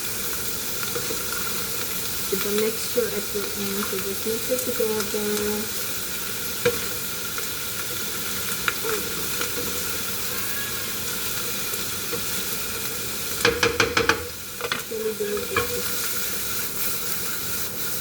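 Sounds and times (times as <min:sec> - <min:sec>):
vegetables sizzling in hot oil: 0:00.0 - 0:18.0
utensil clacking against pan: 0:13.4 - 0:15.9.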